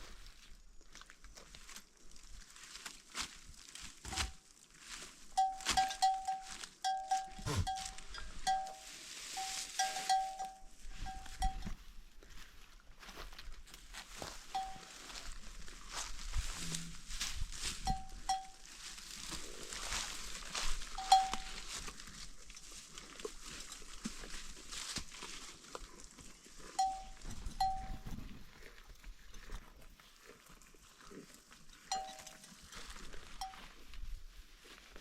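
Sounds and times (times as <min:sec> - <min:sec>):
animal bell clanking: 0:05.3 - 0:11.8, 0:14.5 - 0:15.0, 0:17.8 - 0:18.7, 0:20.9 - 0:21.8, 0:26.7 - 0:28.2, 0:31.8 - 0:33.8.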